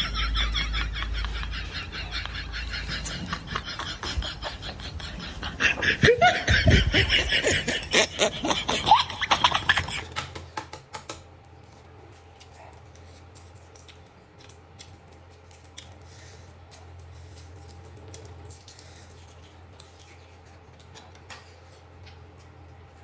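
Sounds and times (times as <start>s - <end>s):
low hum: 0.0s - 10.1s
person laughing loudly: 0.0s - 10.2s.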